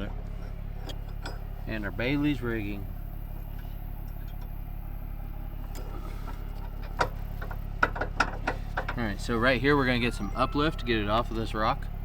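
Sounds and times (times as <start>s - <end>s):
metal hardware clinking: 0.0s - 2.3s
low engine idle: 0.0s - 12.0s.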